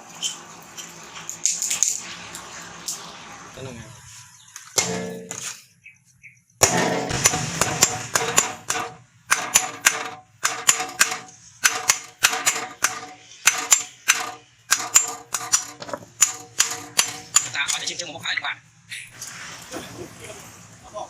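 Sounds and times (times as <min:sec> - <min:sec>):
hammer striking steel on anvil: 0:04.8 - 0:05.6, 0:06.6 - 0:17.8.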